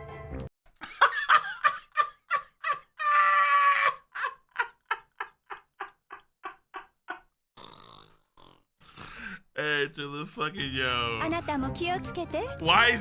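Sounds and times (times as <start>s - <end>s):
cartoon character long cry: 2.8s - 4.4s.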